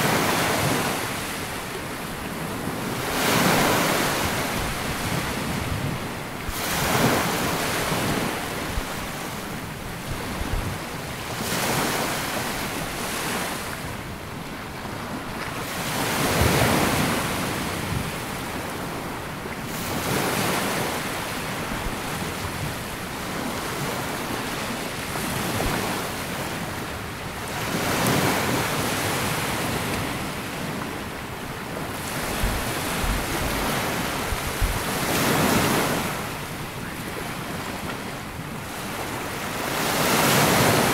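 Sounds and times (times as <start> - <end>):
small waves breaking on beach: 0.0 - 40.9
wind buffeting microphone: 2.2 - 11.8, 26.6 - 39.3.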